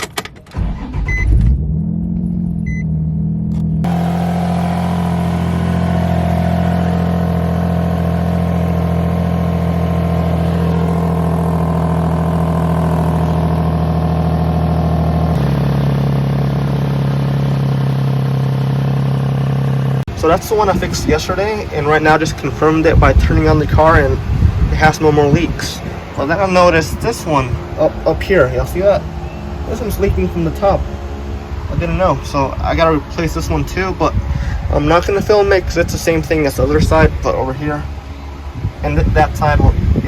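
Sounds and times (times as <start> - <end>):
car engine fast idle: 3.9 - 34.8.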